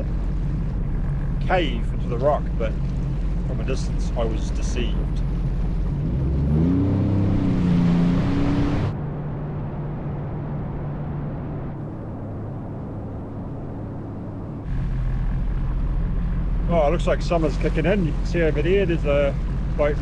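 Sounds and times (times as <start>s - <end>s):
jet ski engine revving: 0.0s - 8.9s, 14.7s - 20.0s.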